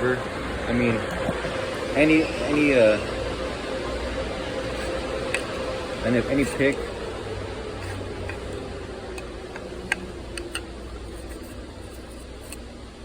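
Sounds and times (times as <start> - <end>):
steady low hum: 0.0 - 13.0
prying tool clicking on rubber seal: 7.8 - 8.6, 9.2 - 12.6.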